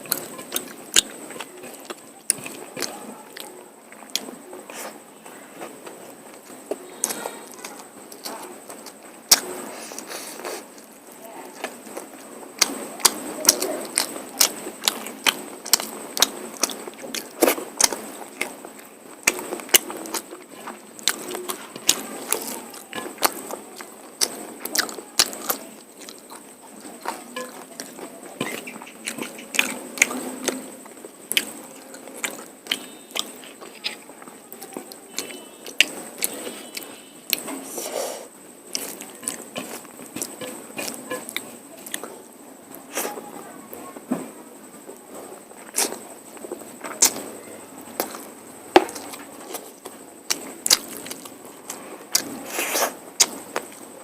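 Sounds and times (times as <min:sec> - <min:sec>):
wet chewing and lip smacking: 0:00.0 - 0:04.9, 0:11.6 - 0:37.5, 0:38.7 - 0:42.2, 0:45.6 - 0:47.3, 0:47.9 - 0:53.9
mouth clicks: 0:21.0 - 0:30.7.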